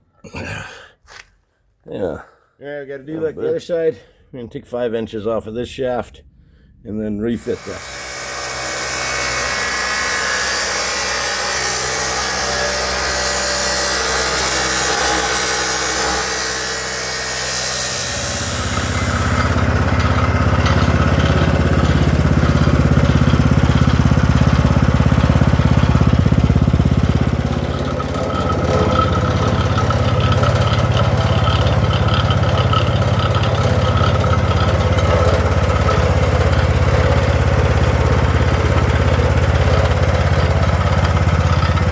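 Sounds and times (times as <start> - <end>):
power tool running: 7.4 - 41.9
engine humming: 17.6 - 41.9.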